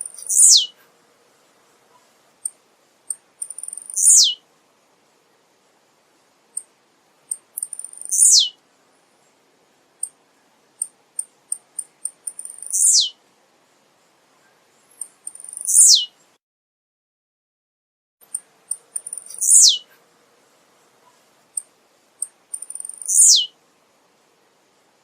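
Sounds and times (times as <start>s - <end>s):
sharp high bird ticks: 0.0s - 0.7s, 2.4s - 4.4s, 7.3s - 8.5s, 10.8s - 13.1s, 14.9s - 15.8s, 18.2s - 19.7s, 21.6s - 23.5s
bird singing buzzy songs: 0.0s - 0.9s, 1.9s - 4.4s, 7.3s - 13.2s, 14.0s - 16.4s, 18.2s - 20.0s, 21.0s - 23.6s.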